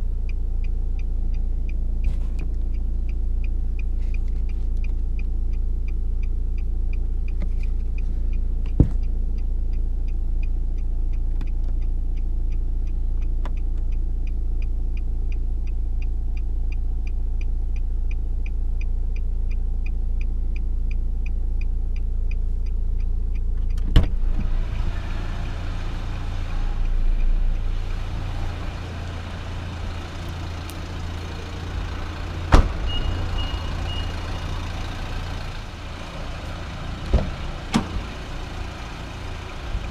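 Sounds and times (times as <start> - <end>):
light engine ticking: 0.0 - 23.8, 25.9 - 39.9
diesel engine idling: 24.1 - 39.9
short high beep: 32.8 - 34.2.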